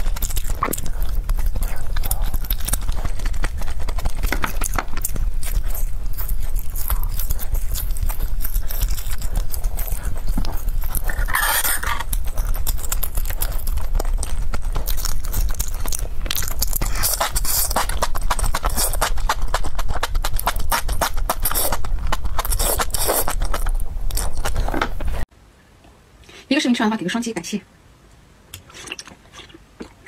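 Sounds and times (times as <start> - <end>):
wet chewing and lip-smacking: 0.0 - 25.0, 28.6 - 30.0
slurp: 28.6 - 30.0.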